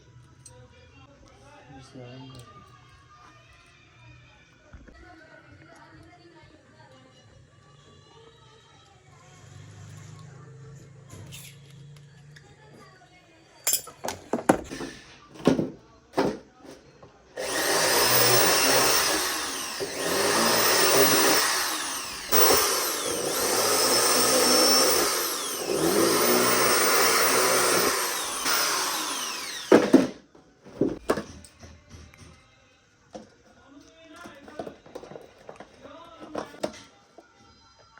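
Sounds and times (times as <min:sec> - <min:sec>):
power tool motor running: 0:17.4 - 0:30.2.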